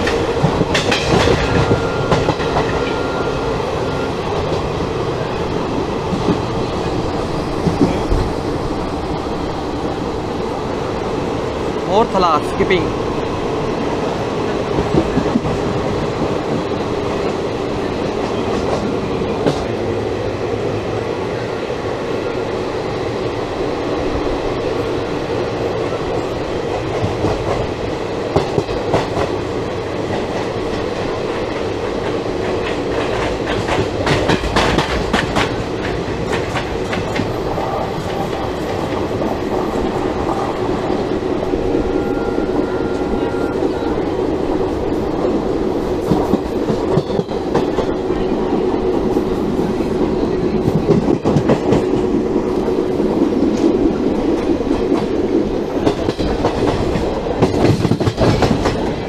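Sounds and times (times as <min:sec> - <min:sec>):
wheel clacks over rail joints: 0:00.0 - 0:03.0, 0:32.4 - 0:37.4, 0:55.8 - 0:59.0
train rumble: 0:00.0 - 0:59.0.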